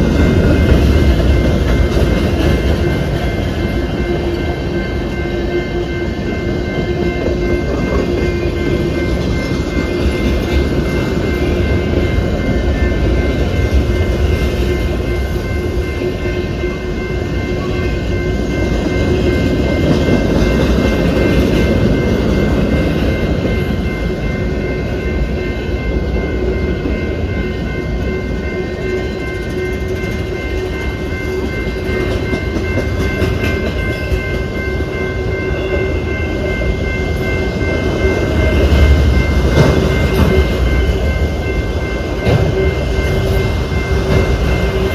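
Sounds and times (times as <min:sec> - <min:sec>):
train wheels rumbling on rails: 0:00.0 - 0:44.9.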